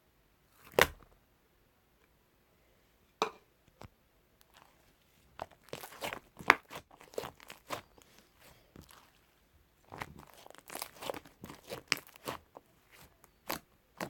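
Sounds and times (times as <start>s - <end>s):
slime crackling and popping: 5.4s - 14.0s.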